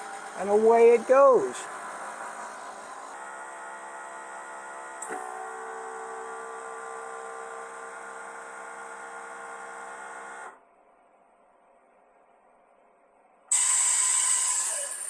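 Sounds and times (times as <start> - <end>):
vacuum pump humming: 0.0 - 8.2.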